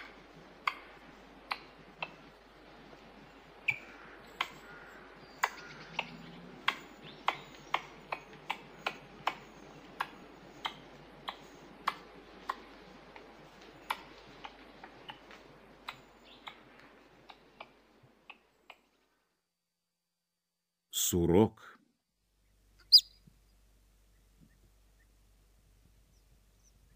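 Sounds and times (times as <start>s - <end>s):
squirrel clicking: 0.0s - 18.8s.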